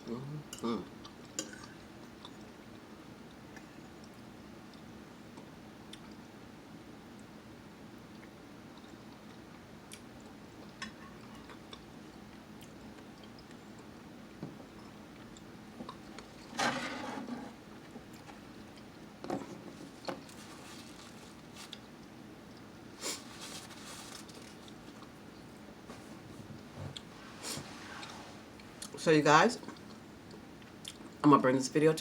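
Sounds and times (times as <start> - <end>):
person chewing: 8.1 - 14.0, 19.9 - 25.6, 29.6 - 31.2.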